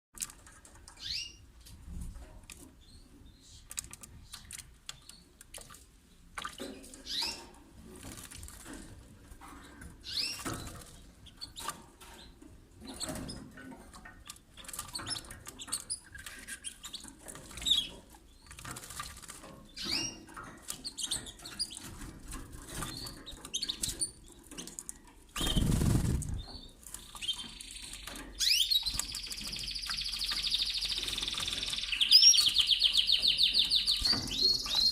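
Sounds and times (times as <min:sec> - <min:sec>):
wings fluttering in water: 0:07.9 - 0:08.9, 0:18.5 - 0:19.5, 0:25.4 - 0:26.5.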